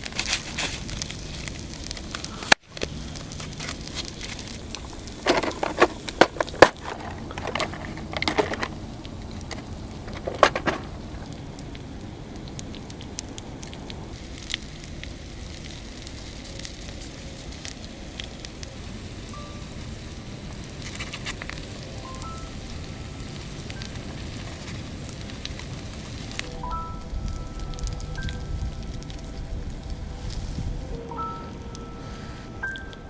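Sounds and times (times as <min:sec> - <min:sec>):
sharp fire pops: 0:00.0 - 0:05.3
campfire crackling: 0:00.0 - 0:33.0
low hiss of burning: 0:00.0 - 0:33.0.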